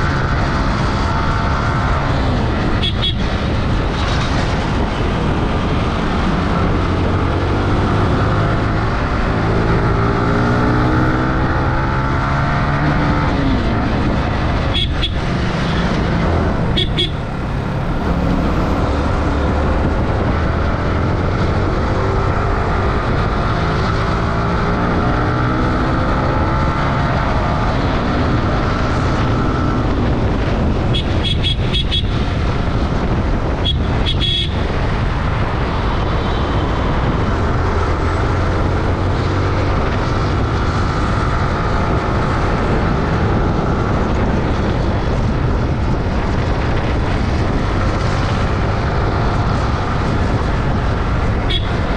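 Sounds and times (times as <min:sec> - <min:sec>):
motorcycle engine accelerating: 0:00.0 - 0:30.9, 0:35.2 - 0:51.9
wind and road noise: 0:00.0 - 0:51.9
horn beeps: 0:16.7 - 0:17.3, 0:51.5 - 0:51.8.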